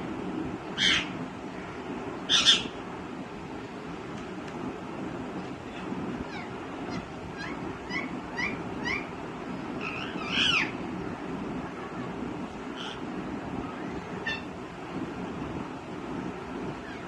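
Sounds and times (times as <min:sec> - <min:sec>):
parakeet chirping: 0:00.8 - 0:01.1, 0:02.3 - 0:02.7, 0:09.8 - 0:10.7, 0:14.2 - 0:14.5.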